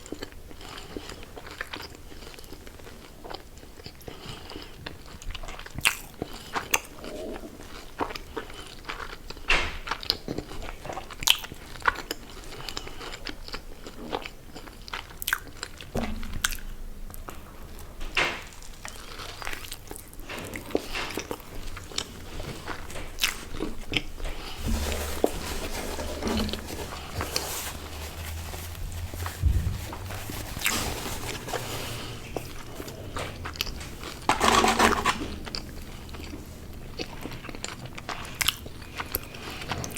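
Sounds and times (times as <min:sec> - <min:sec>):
person chewing crunchy food: 0:18.8 - 0:24.9, 0:25.5 - 0:39.9.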